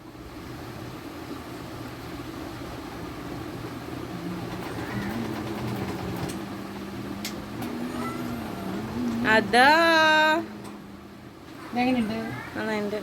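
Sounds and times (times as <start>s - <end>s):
engine humming: 2.9s - 13.0s
droning tone rising in pitch: 3.9s - 11.4s.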